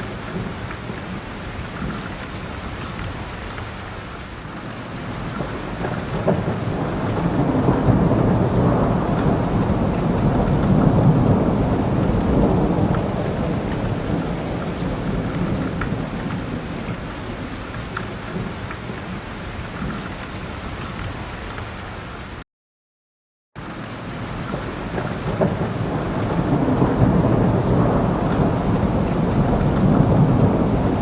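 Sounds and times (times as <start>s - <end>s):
steady rain: 0.0s - 22.4s, 23.6s - 31.0s
thunder rumble: 5.1s - 19.2s, 24.4s - 31.0s.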